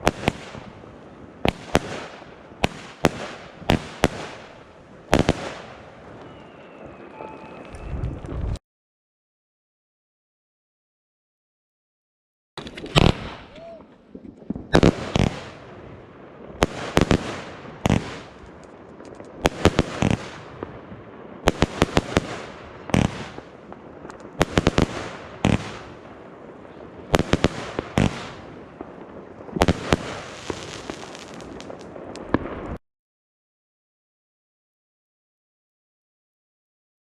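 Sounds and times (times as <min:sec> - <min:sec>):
firework bangs: 0:00.0 - 0:08.4, 0:12.6 - 0:32.8
firework crackling and hiss: 0:00.0 - 0:08.6, 0:12.6 - 0:32.8.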